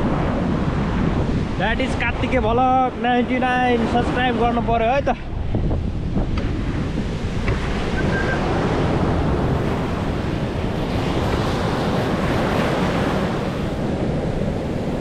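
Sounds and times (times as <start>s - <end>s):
sea surf washing onto beach: 0.0s - 15.0s
wind buffeting microphone: 0.0s - 15.0s.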